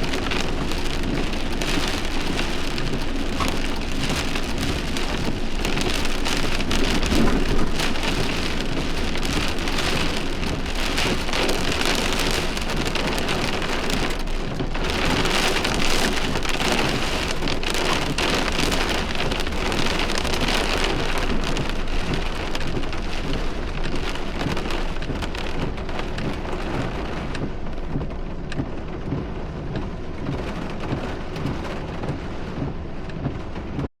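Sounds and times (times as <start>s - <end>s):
heavy rain on hard surface: 0.0s - 33.9s.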